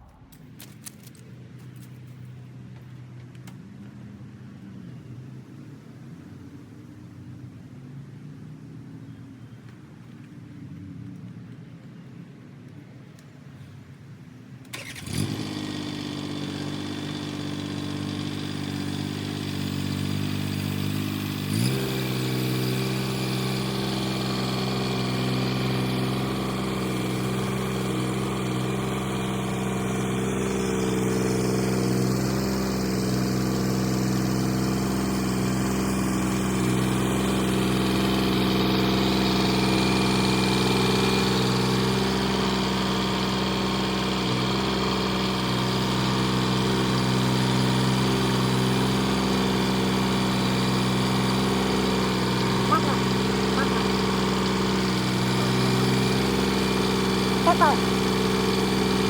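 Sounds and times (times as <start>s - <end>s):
tractor diesel engine revving: 14.7s - 59.0s.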